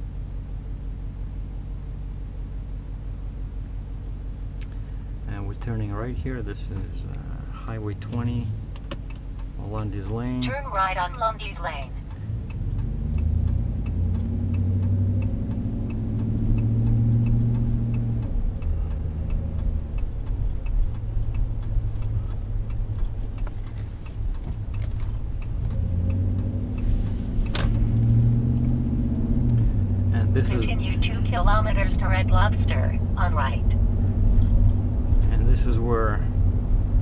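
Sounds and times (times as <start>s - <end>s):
truck engine accelerating: 4.5s - 37.0s
turn signal clicking: 8.0s - 30.0s.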